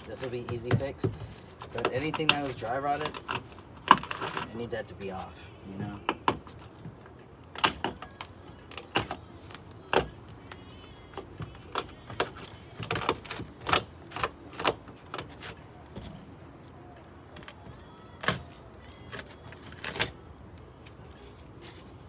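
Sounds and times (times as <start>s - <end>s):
rotten wood cracking and snapping: 17.0s - 21.5s.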